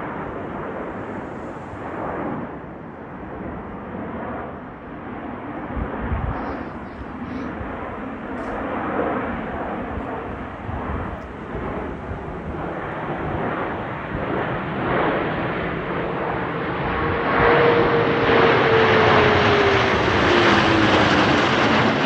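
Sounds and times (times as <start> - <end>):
airplane flying overhead: 0.0 - 22.0.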